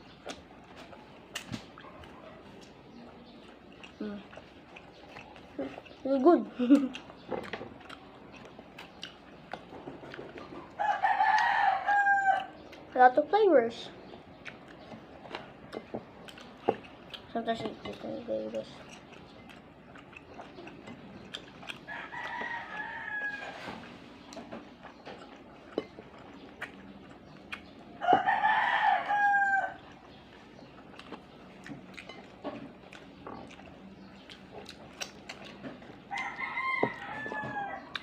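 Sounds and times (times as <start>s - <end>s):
rooster crowing: 10.8s - 12.6s, 21.9s - 23.8s, 28.0s - 29.9s, 36.1s - 38.0s.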